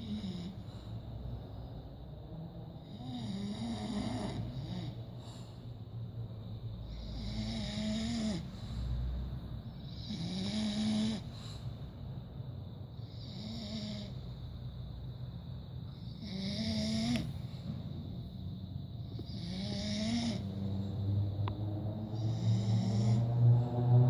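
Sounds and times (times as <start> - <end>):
dog snoring: 0.0 - 0.9, 2.8 - 5.7, 6.8 - 8.9, 9.7 - 11.6, 13.0 - 14.3, 15.9 - 17.5, 19.1 - 24.0.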